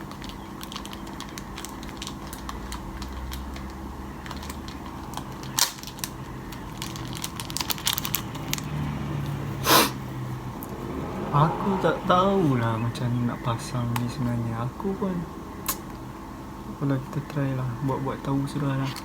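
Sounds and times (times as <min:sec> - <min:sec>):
small clicks taps and rustles: 0:00.0 - 0:08.8
sharp scrape: 0:09.6 - 0:10.0.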